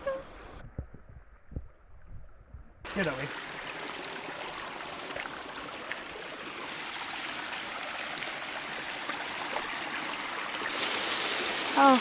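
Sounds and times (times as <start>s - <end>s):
small waterfall rushing: 2.9s - 12.0s.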